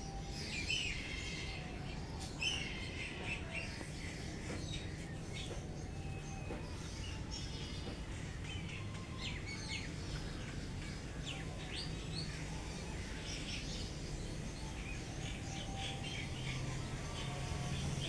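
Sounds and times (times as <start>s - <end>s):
low background hum: 0.0s - 18.0s
small birds chirping: 0.0s - 18.0s.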